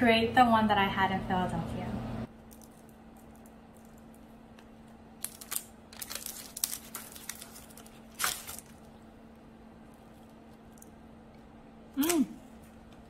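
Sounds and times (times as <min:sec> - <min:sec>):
parchment paper crinkling: 0:02.4 - 0:08.9.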